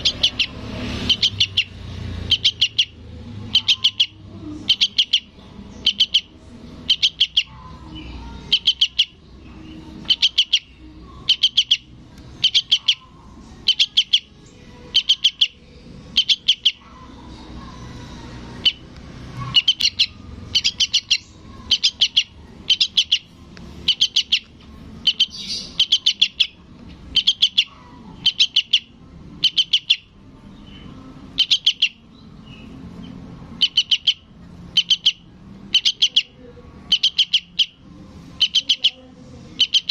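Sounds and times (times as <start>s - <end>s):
fledgling bird high chirps: 0.0s - 17.7s, 18.5s - 39.0s, 39.6s - 39.9s.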